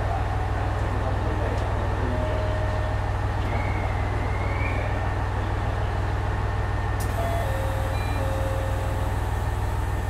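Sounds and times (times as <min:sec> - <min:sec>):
railcar engine low hum: 0:00.0 - 0:10.0.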